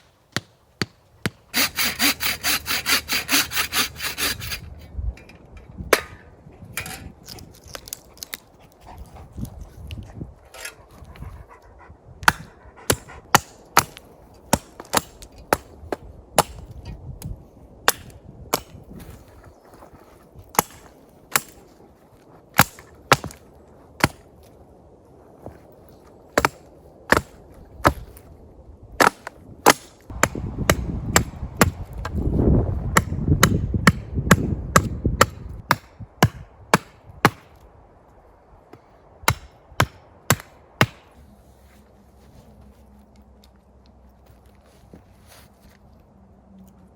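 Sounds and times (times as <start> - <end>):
low rustling and rumble: 3.8 - 13.3, 37.5 - 46.9.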